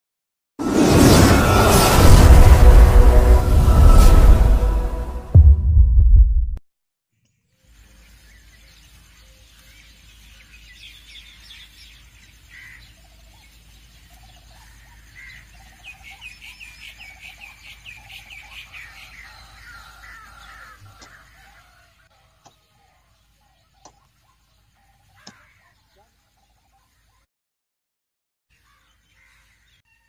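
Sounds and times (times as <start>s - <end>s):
birds chirping: 7.6s - 27.3s.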